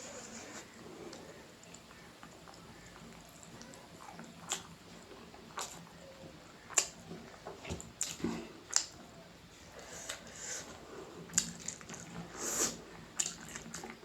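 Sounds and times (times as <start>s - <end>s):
wet chewing and mouth smacks: 1.1s - 6.0s, 6.6s - 9.0s, 11.2s - 14.0s.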